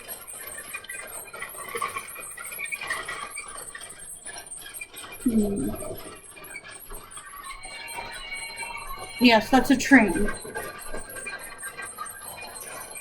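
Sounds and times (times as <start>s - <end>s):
person humming: 5.3s - 6.0s.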